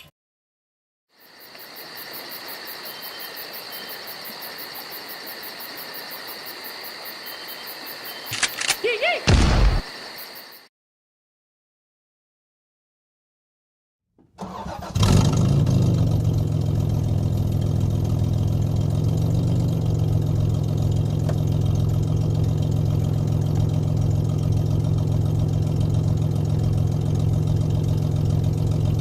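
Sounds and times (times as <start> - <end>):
vehicle engine starting and idling: 14.3 - 29.0.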